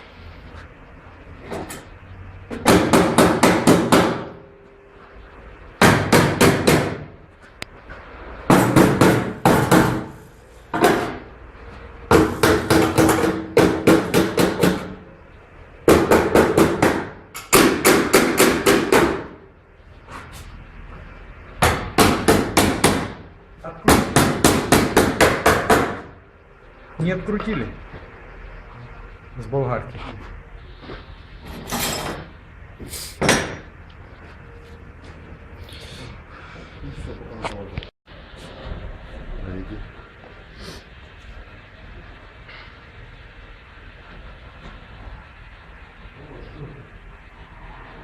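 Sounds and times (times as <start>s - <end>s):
hammer striking metal: 15.9s - 19.4s.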